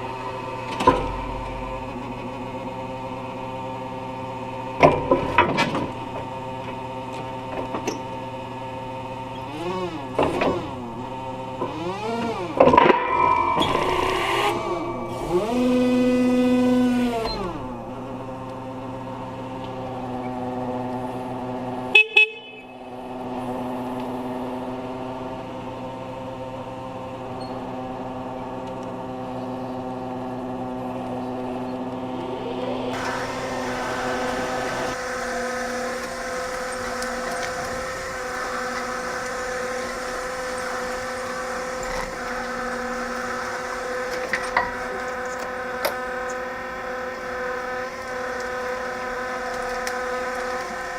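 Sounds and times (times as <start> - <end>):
forklift machine hum: 0.0 - 50.9
forklift horn beeps: 21.9 - 23.0.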